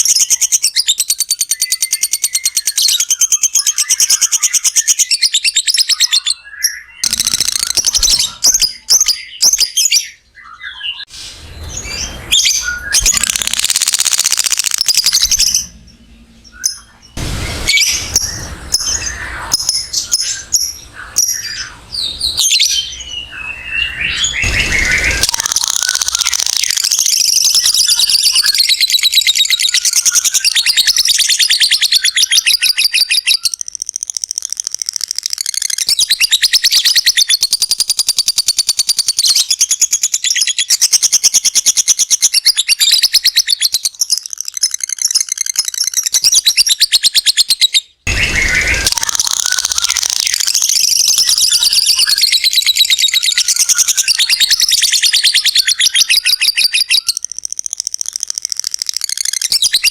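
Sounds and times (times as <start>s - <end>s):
lovebird chattering trills: 7.0s - 9.7s, 12.5s - 15.8s, 24.4s - 38.1s, 48.1s - 59.9s.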